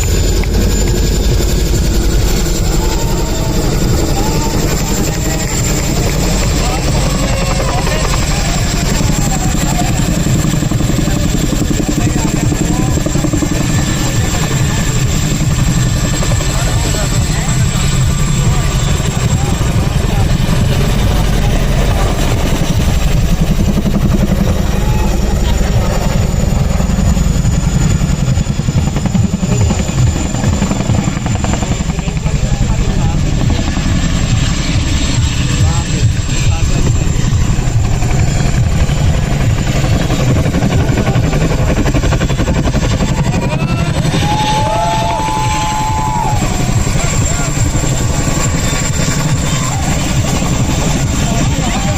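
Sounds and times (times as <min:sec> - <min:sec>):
helicopter rotor chop: 0:00.0 - 0:51.9.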